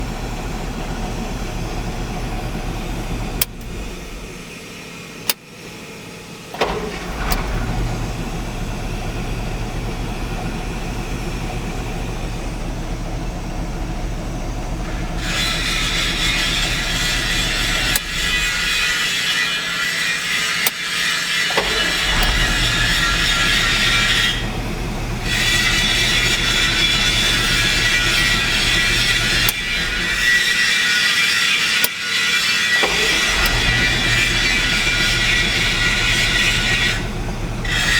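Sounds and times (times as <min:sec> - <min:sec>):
truck engine idling: 0:00.0 - 0:37.9
sharp clicks: 0:03.3 - 0:04.5, 0:15.2 - 0:19.2, 0:20.6 - 0:24.2.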